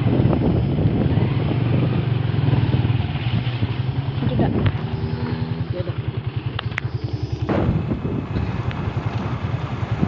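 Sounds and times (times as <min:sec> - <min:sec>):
motorcycle engine running: 0:00.0 - 0:10.0
road and wind noise: 0:00.0 - 0:10.0.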